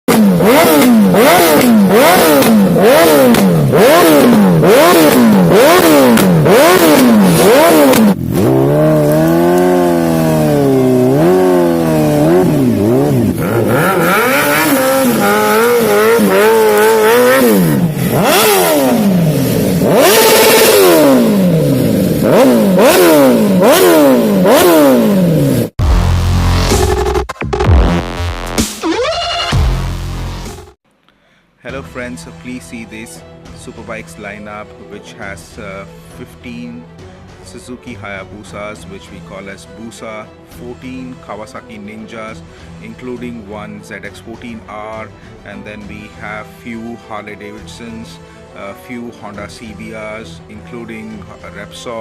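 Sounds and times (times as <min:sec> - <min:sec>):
motorbike engines revving: 0:00.1 - 0:25.8.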